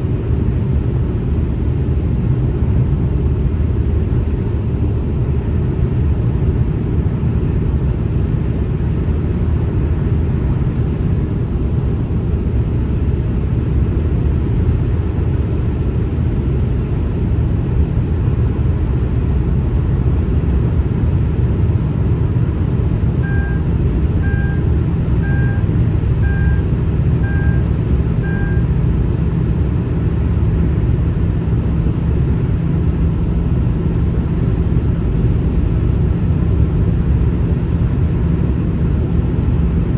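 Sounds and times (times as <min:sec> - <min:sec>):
car road and tyre noise: 0:00.0 - 0:39.9
short beeps: 0:23.2 - 0:28.7.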